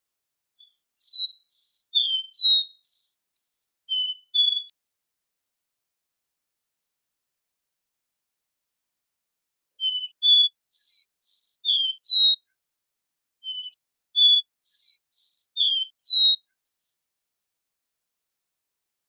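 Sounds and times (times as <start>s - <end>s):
bird singing high whistled notes: 0.6s - 4.8s, 9.8s - 12.6s, 13.4s - 17.2s.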